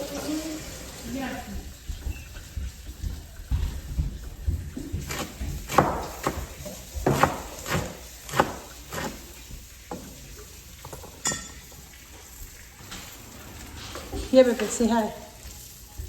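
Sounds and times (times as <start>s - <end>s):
kitchen utensils clinking: 5.1s - 16.0s.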